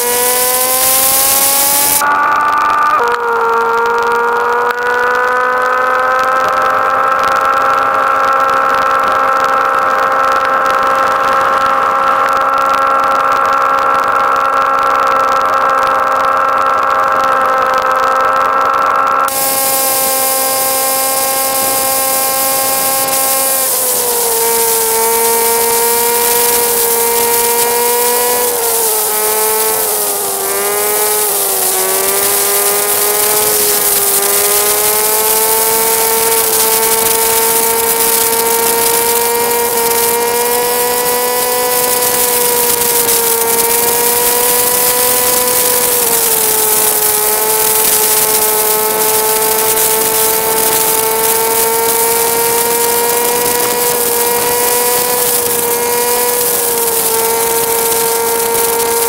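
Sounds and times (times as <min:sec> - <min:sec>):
motorcycle engine running: 0:00.0 - 0:59.0
steady hiss: 0:19.3 - 0:39.7.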